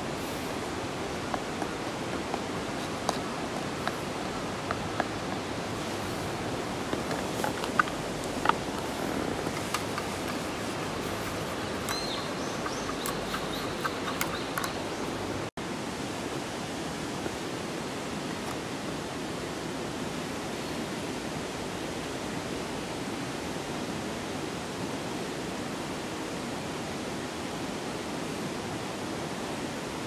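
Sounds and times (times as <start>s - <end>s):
light clicks and ticks: 7.0s - 15.2s.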